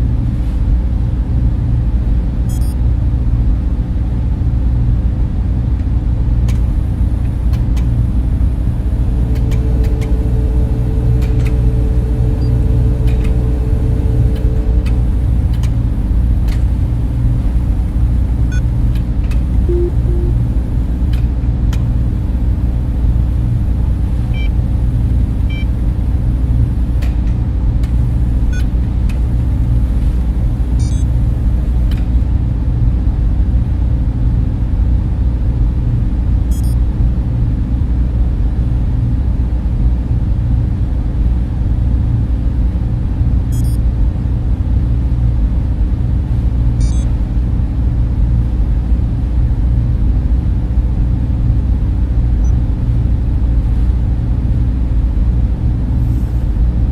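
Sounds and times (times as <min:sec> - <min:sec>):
cooling fans whirring: 0:00.0 - 0:56.9
low hum: 0:03.9 - 0:33.7
faint high chirps: 0:19.7 - 0:20.4.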